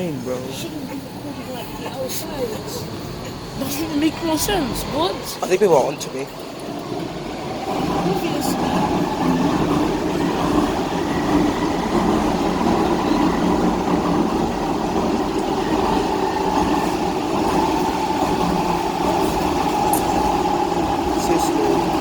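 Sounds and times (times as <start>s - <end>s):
train running rumble: 0.0s - 22.0s.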